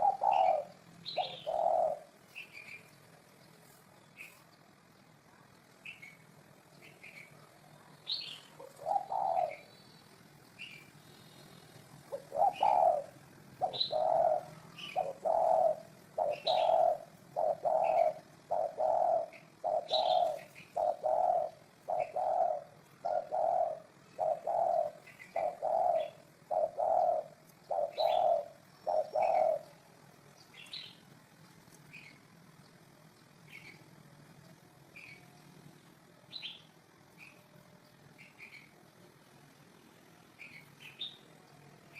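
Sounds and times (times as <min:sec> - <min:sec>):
dove cooing: 0:00.0 - 0:03.3, 0:05.9 - 0:30.0
small birds chirping: 0:00.0 - 0:41.9.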